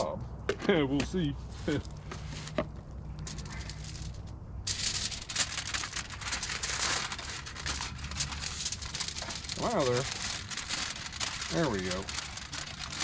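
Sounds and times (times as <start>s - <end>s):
aluminium foil crinkling: 3.2s - 13.0s.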